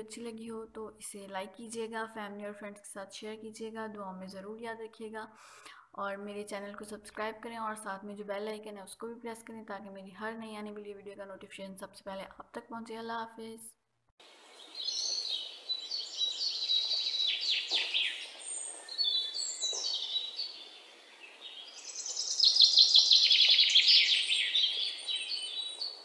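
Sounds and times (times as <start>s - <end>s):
birds chirping and trilling: 14.4s - 26.0s.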